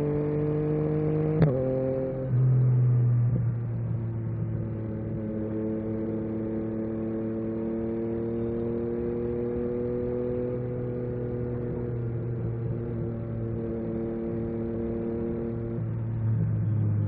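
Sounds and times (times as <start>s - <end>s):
motorcycle engine at low revs: 0.0s - 17.0s.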